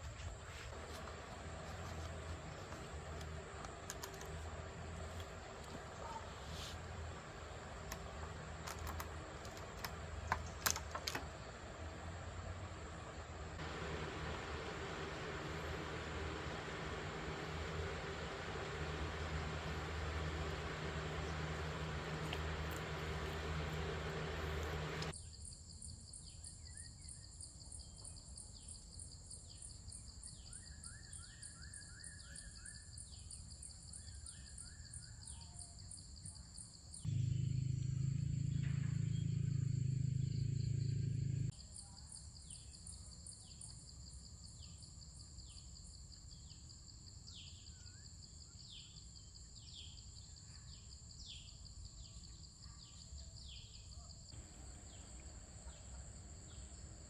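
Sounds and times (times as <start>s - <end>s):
low hum: 0.0s - 25.1s, 37.1s - 41.5s, 54.4s - 57.0s
insects chirring: 6.9s - 26.3s, 54.2s - 57.0s.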